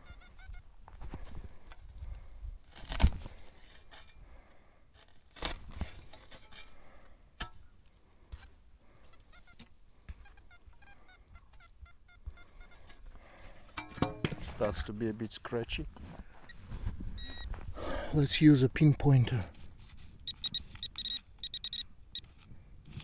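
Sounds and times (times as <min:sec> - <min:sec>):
metal detector tones: 0:00.0 - 0:00.6, 0:09.0 - 0:13.0, 0:16.4 - 0:17.6, 0:20.2 - 0:22.4.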